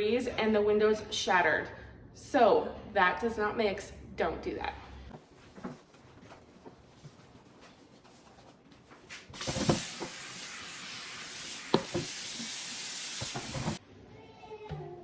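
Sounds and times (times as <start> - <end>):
tap water running into sink: 9.4 - 13.8.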